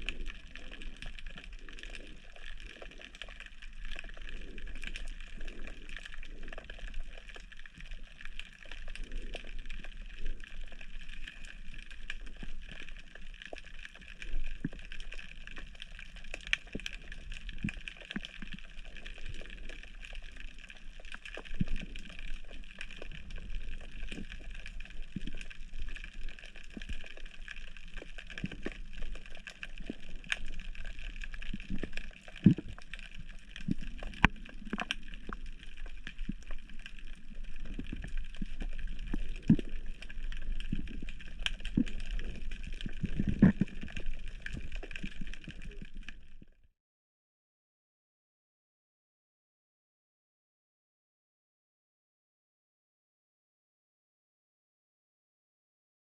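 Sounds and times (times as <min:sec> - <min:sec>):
underwater clicks: 0:22.7 - 0:46.0.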